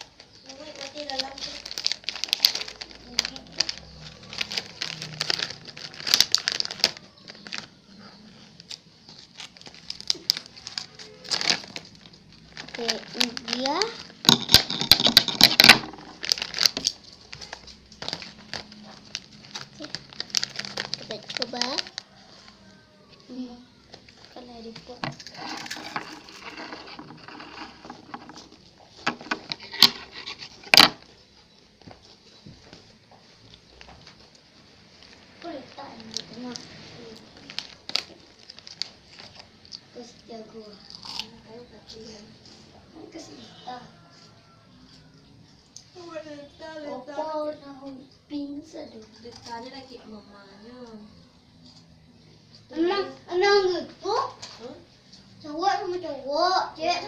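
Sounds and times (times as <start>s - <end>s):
plastic packaging crinkling: 0.0s - 7.7s, 8.6s - 22.5s, 24.0s - 31.1s, 34.9s - 39.7s
food being handled: 24.1s - 31.1s.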